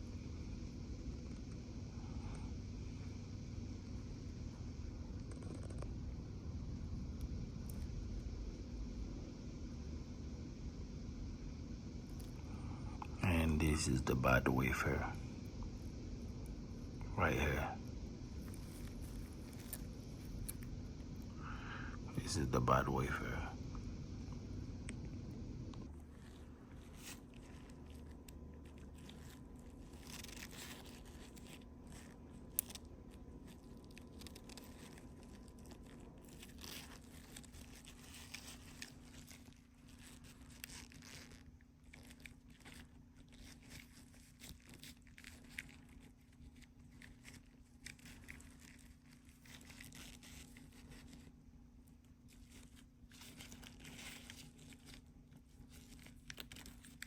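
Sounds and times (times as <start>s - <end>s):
low hum: 0.0s - 42.3s.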